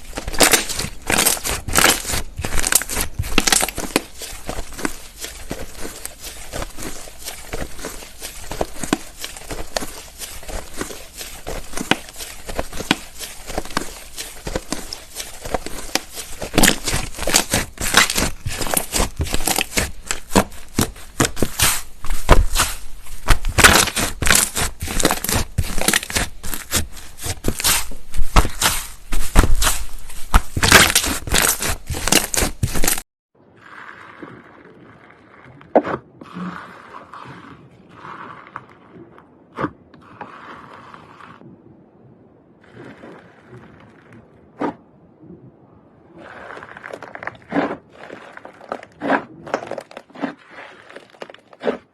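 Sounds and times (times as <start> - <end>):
slime crackling and popping: 0.1 - 33.0.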